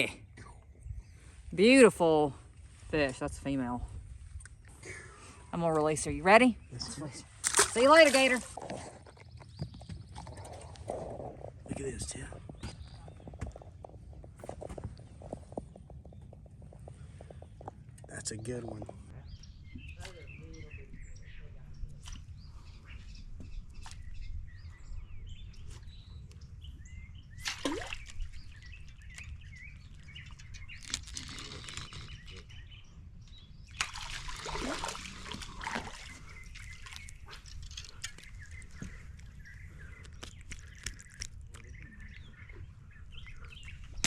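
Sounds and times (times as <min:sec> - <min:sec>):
small birds chirping: 0:00.0 - 0:44.0
water splashing: 0:07.3 - 0:08.7, 0:27.4 - 0:28.6, 0:33.7 - 0:37.6.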